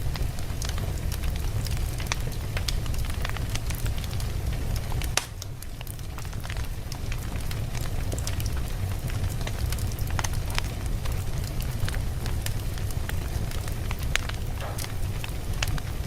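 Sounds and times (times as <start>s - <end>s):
fire rumbling: 0.0s - 16.0s
wood crackling and popping: 0.0s - 16.0s.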